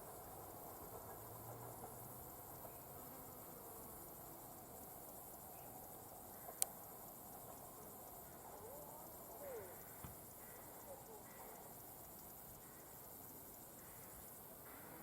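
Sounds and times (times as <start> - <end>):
insects chirring: 0.0 - 15.0
faint wavering calls: 8.2 - 11.8.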